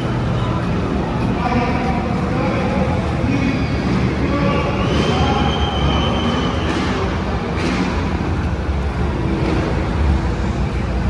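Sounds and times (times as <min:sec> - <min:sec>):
rally car engines rumbling: 0:00.0 - 0:11.0.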